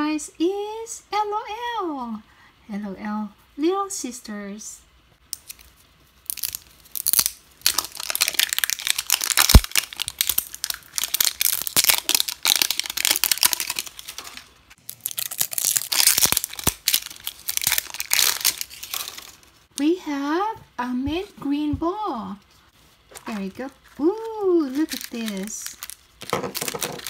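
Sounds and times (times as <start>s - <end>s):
plastic wrapping crumpling: 5.4s - 19.7s, 23.0s - 27.0s
sharp crack: 7.0s - 13.8s.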